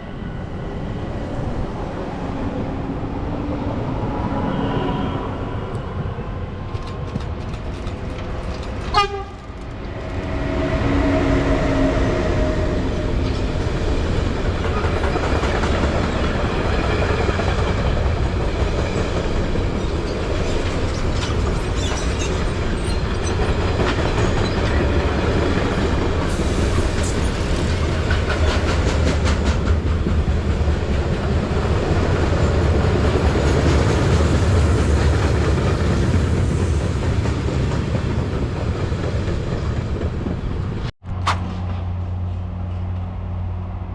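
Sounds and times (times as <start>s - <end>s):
train wheels rumbling on rails: 5.6s - 43.9s
wheels clicking over rail joints: 6.6s - 10.4s.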